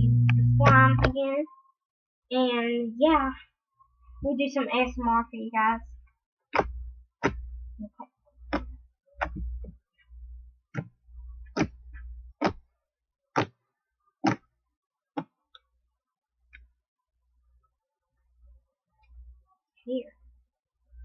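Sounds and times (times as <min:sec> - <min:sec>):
dull handling thumps: 0:08.5 - 0:09.8.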